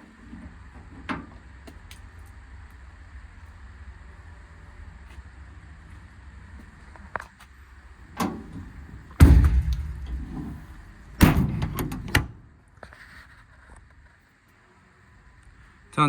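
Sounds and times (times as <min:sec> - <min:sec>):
metal doors banging shut: 0:08.1 - 0:12.5
door latches rattling: 0:08.2 - 0:12.4.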